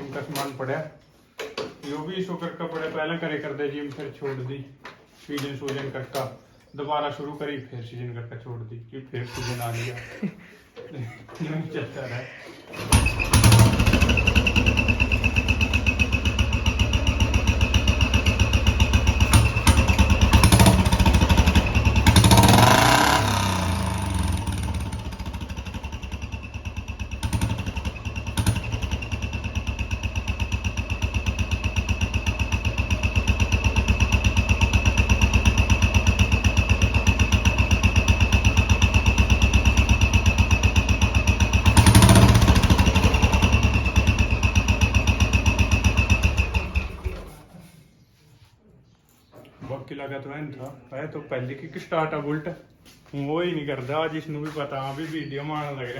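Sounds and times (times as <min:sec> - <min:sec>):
engine revving: 0:12.8 - 0:47.4
motorcycle engine idling: 0:12.9 - 0:47.5.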